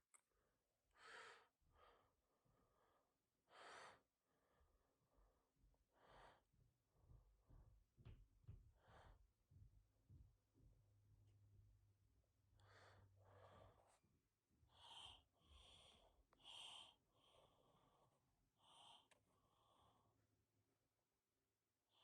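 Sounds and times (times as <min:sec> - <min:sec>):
person breathing heavily: 0:01.0 - 0:04.7, 0:05.9 - 0:06.5, 0:08.7 - 0:09.4, 0:12.6 - 0:14.0, 0:14.6 - 0:20.2.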